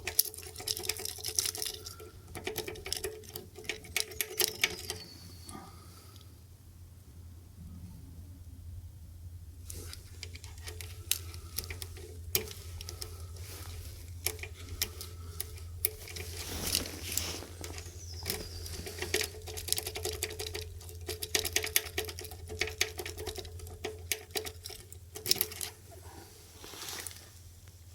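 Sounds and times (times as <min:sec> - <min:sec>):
key scraping and clicking in lock: 0:00.0 - 0:05.1, 0:14.0 - 0:25.8
steady low hum: 0:00.0 - 0:27.9.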